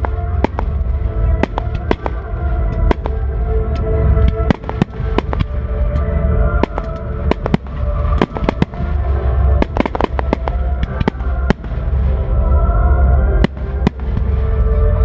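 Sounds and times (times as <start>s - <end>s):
fireworks bangs: 0.0s - 3.3s, 4.2s - 5.7s, 6.6s - 12.1s, 13.4s - 14.5s
music with heavy bass: 0.0s - 15.0s.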